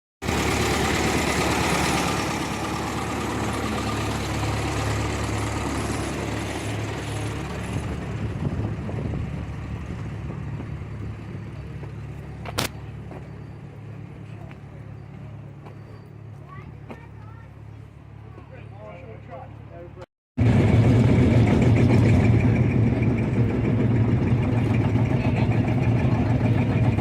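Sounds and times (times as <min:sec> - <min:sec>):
tractor engine running: 0:00.2 - 0:18.4, 0:19.5 - 0:27.0
sharp click: 0:12.4 - 0:12.8.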